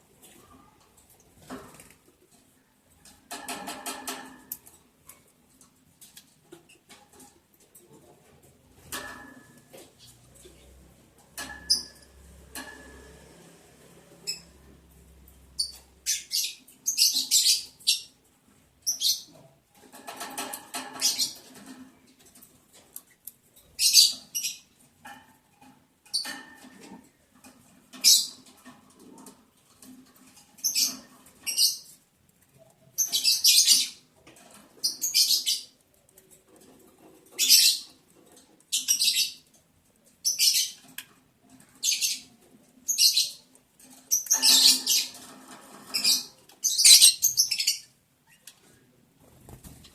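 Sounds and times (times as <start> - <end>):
lovebirds chirping: 45.9 - 48.4.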